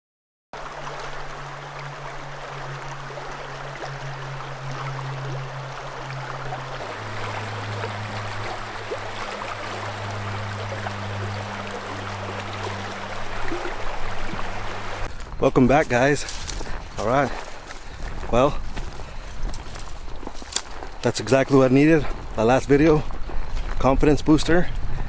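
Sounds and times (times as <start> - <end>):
river water rushing: 0.6 - 15.1
low steady hum: 0.6 - 15.2.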